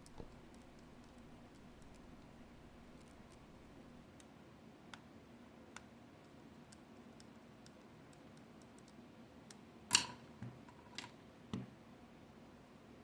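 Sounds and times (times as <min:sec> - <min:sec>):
faint clicks: 0:00.0 - 0:04.0
soft taps: 0:00.0 - 0:04.0.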